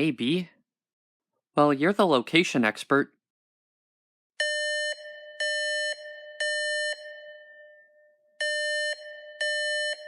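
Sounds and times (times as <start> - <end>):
electronic alarm beeping: 4.4 - 10.0.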